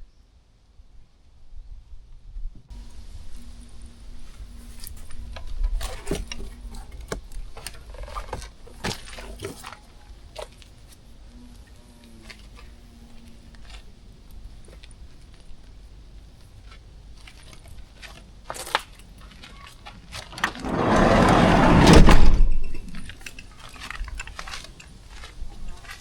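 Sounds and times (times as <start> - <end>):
low rumble: 20.4 - 23.2.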